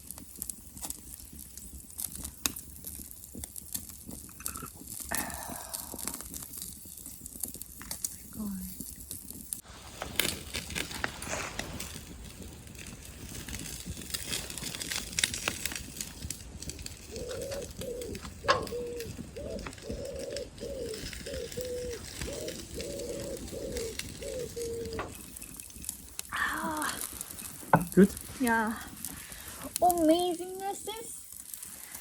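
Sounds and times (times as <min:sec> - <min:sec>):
campfire crackling and popping: 0:00.0 - 0:32.0
pigeon cooing: 0:05.1 - 0:06.3, 0:17.0 - 0:25.5.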